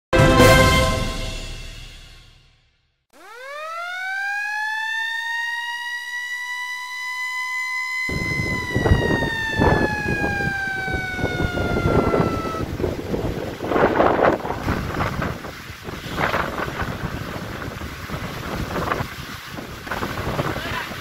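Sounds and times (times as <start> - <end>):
siren wailing: 3.2 - 13.3
surf crashing: 8.1 - 21.0
wind buffeting microphone: 8.1 - 21.0.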